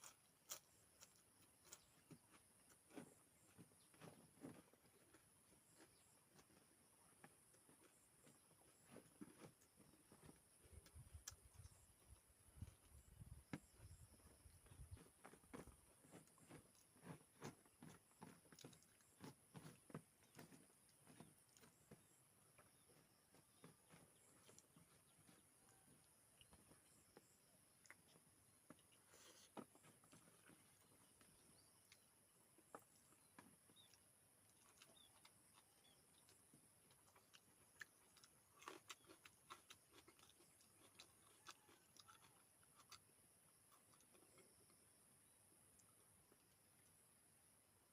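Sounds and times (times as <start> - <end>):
person chewing crunchy food: 0.0 - 45.1
person chewing with mouth clicks: 32.8 - 44.8.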